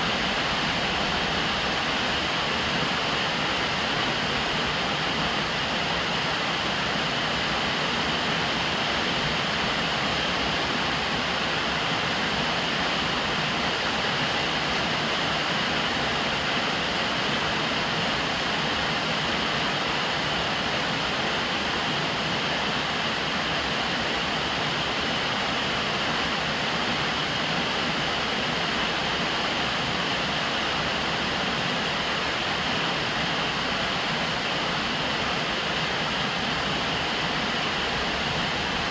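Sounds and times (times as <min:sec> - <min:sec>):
rain falling on a roof: 0:00.0 - 0:38.9.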